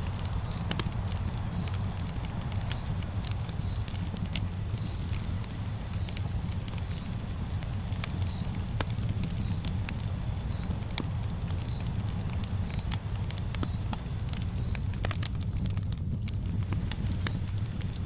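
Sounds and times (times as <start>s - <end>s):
campfire crackling: 0.0s - 18.0s
low fire rumble: 0.0s - 18.0s
faint high chirp: 0.3s - 0.9s, 1.5s - 4.0s, 4.7s - 5.2s, 5.9s - 7.2s, 8.0s - 9.7s, 10.4s - 10.8s, 11.4s - 13.0s, 13.6s - 15.8s.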